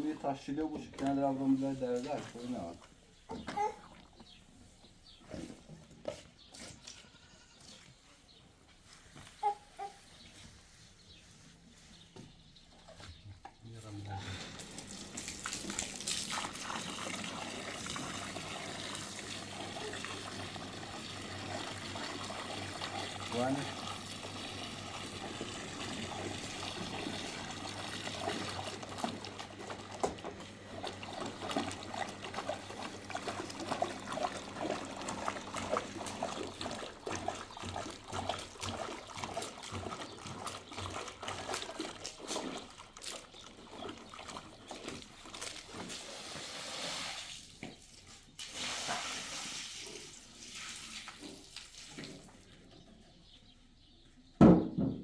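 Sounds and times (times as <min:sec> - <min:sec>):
water trickling and splashing: 0:13.7 - 0:52.7.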